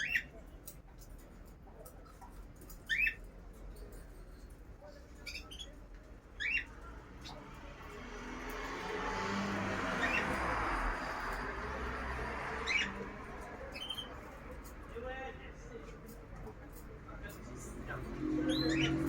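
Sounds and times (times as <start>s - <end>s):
bird squawking: 0.0s - 0.3s, 2.8s - 3.2s, 6.4s - 7.4s, 9.9s - 10.4s, 12.6s - 13.1s, 18.4s - 19.0s.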